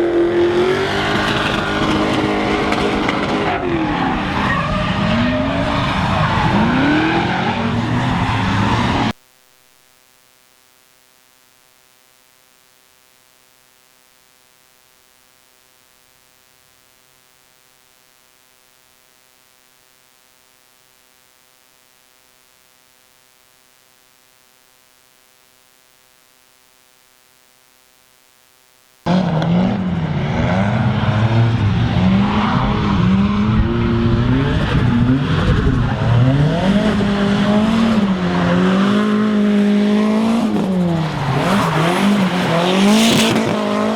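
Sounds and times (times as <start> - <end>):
faint steady hum: 9.1 - 29.1
car engine revving hard: 29.1 - 43.9.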